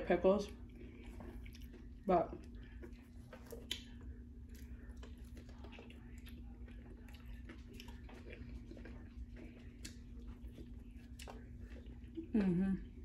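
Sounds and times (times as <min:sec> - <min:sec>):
steady low hum: 0:00.0 - 0:13.0
close-up chewing: 0:00.4 - 0:13.0
wet mouth clicks: 0:03.5 - 0:04.0.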